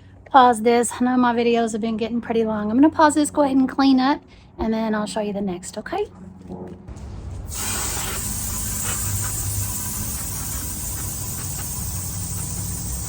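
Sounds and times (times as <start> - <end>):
hose spraying water on wood: 7.5 - 13.0.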